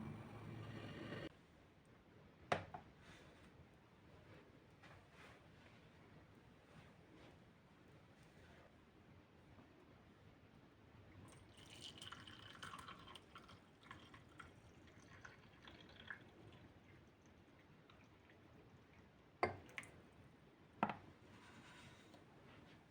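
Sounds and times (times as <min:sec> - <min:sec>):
liquid pouring and dripping: 0:11.2 - 0:20.2.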